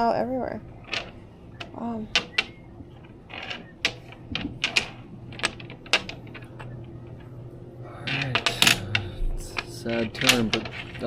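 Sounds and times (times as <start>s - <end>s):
domino tiles clacking on table: 0.8s - 6.5s, 8.1s - 11.0s.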